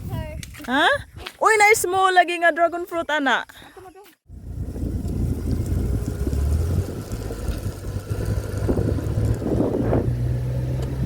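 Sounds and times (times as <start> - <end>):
wind buffeting microphone: 0.0 - 2.3, 4.3 - 11.0
motorcycle engine running: 4.3 - 11.0.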